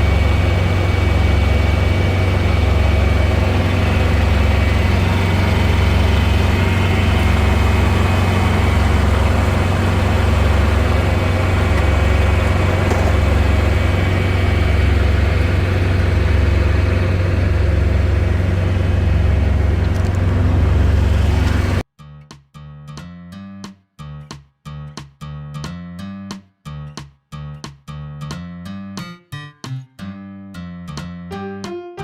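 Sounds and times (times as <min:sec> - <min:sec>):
heavy engine idling: 0:00.0 - 0:21.8.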